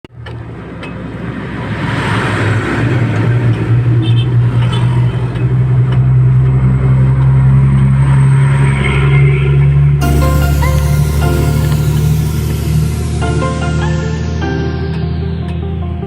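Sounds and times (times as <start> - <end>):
truck engine droning: 5.5 - 16.0
music: 10.0 - 16.0.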